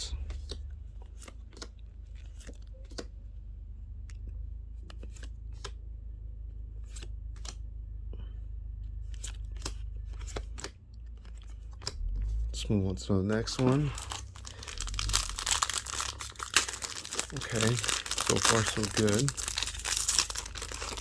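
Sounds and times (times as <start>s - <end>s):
low steady hum: 0.0s - 21.0s
trading cards snapping: 1.2s - 3.1s.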